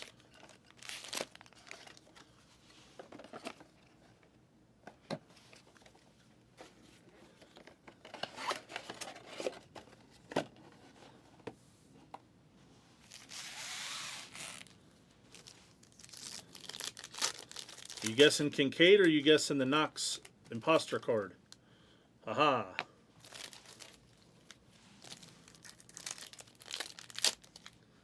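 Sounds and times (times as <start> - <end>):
plastic wrapper tearing: 0.0 - 2.1, 15.3 - 18.5, 23.2 - 27.8
packaging clicks and crinkles: 0.0 - 2.4, 14.4 - 19.1, 23.2 - 27.8.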